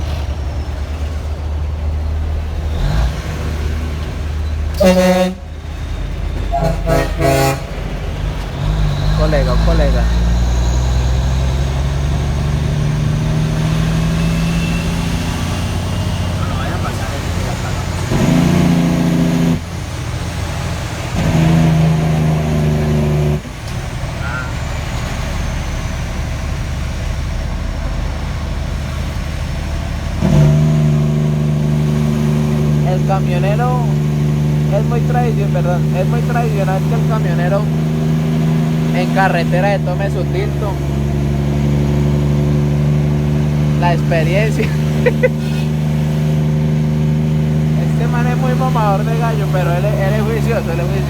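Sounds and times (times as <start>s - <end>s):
idling traffic engine rumble: 0.0s - 51.0s
vehicle horn: 4.7s - 5.6s, 6.5s - 7.9s.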